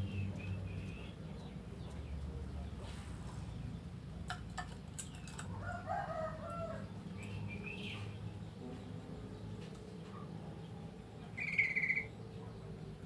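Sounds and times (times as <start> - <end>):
bird call: 11.4 - 12.1
high bird chirps: 11.4 - 12.2.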